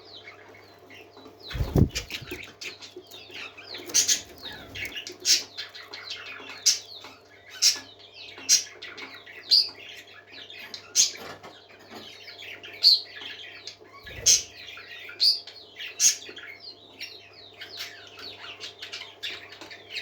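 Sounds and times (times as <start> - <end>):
parakeets chattering and warbling: 0.2 - 9.4, 12.6 - 16.6
loud sharp bird chirps: 1.5 - 2.5.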